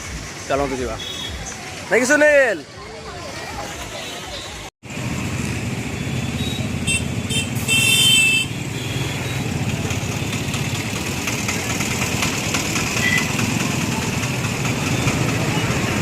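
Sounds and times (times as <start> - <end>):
motorcycle engine running: 4.9 - 16.0.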